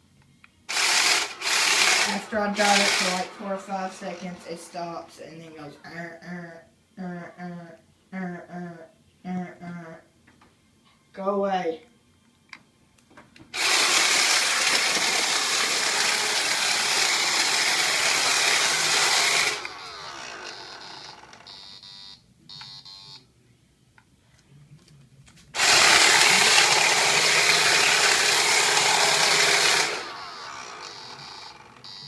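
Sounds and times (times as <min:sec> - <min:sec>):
robot vacuum running: 0:00.7 - 0:05.0, 0:13.6 - 0:21.5, 0:25.6 - 0:32.0
short electronic beeps: 0:21.5 - 0:23.2, 0:31.0 - 0:32.0.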